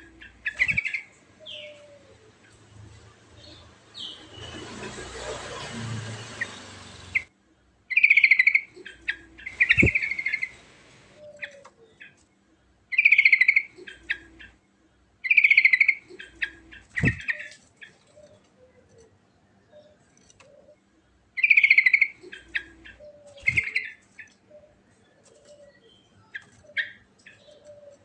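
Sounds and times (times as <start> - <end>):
bird calls: 0.0 - 2.6, 7.9 - 12.2, 12.9 - 28.0
bird singing trilled phrases: 0.1 - 1.8, 7.9 - 10.6, 12.9 - 14.6, 15.2 - 18.4, 21.4 - 24.8
steady hiss: 9.4 - 11.2.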